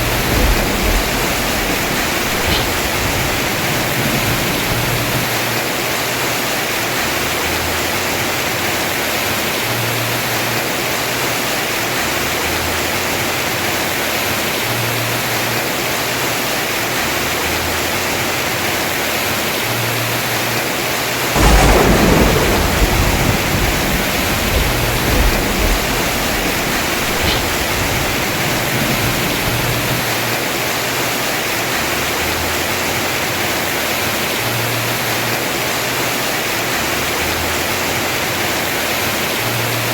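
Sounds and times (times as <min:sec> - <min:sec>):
thunderclap rumbling: 0:00.0 - 0:05.6, 0:21.4 - 0:30.3
heavy rain on roof: 0:00.0 - 0:39.9.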